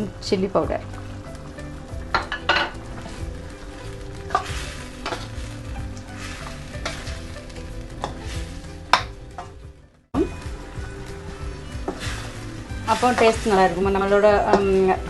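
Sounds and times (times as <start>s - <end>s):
gravy sizzling: 0.0s - 15.0s
spoon scraping and knocking pan: 2.0s - 3.4s, 4.2s - 9.7s, 11.7s - 15.0s.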